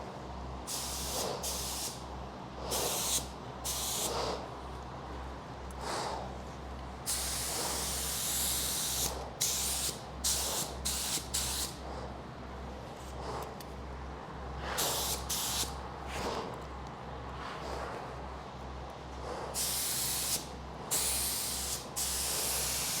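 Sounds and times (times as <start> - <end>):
steady low hum: 0.0 - 23.0
paint spray gun hissing: 0.7 - 2.0, 2.7 - 4.3, 7.1 - 11.8, 14.8 - 15.7, 19.6 - 23.0.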